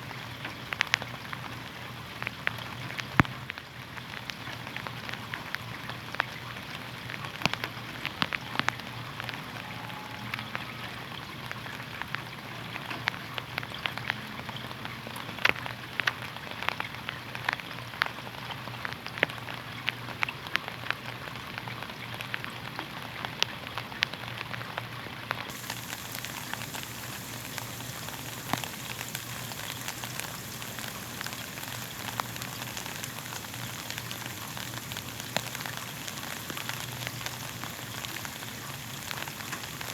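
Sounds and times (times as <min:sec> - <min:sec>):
rain on a hard surface: 0:00.0 - 0:39.9
faint low hum: 0:25.5 - 0:39.9.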